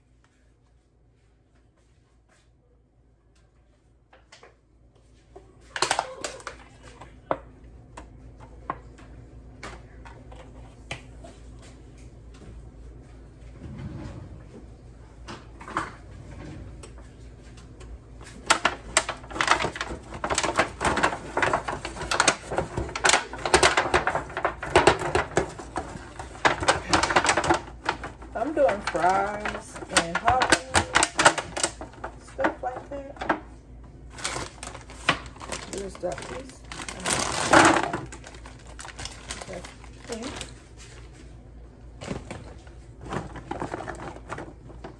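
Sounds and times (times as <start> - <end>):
rapid clicking and rustling: 18.4 - 33.4.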